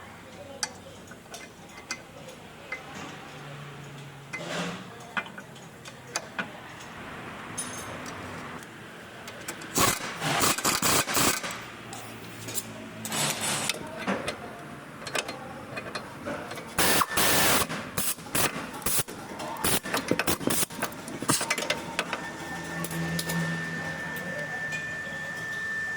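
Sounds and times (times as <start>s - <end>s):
steady high tone: 21.5s - 25.9s.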